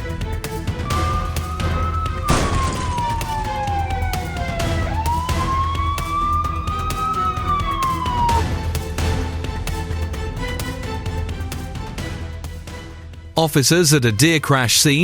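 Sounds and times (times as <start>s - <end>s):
background music: 0.0s - 15.0s
emergency siren wailing: 0.8s - 9.2s.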